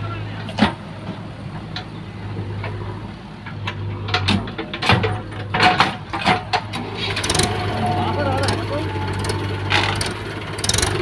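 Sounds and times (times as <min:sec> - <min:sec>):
diesel engine running: 0:00.0 - 0:11.0
sharp knocks and clanks: 0:03.4 - 0:07.6.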